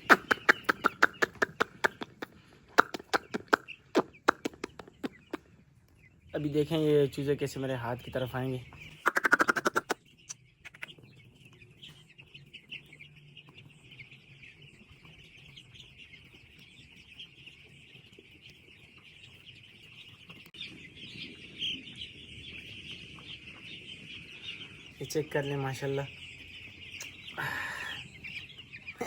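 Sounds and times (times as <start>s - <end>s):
chicks peeping: 0.0s - 29.0s.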